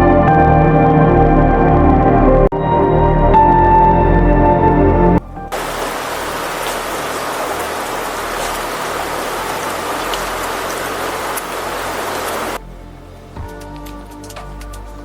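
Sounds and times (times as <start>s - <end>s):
steady rain falling: 5.2s - 15.0s.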